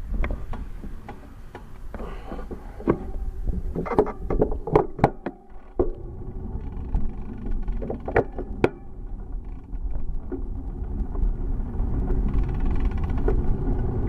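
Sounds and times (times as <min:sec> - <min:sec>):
wind on microphone: 0:00.0 - 0:05.1, 0:05.8 - 0:14.0
bicycle knocks and rattles: 0:00.0 - 0:14.0.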